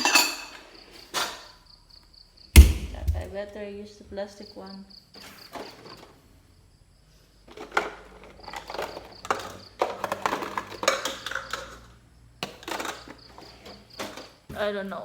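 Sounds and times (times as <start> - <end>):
dishes clattering: 0.0 - 0.6.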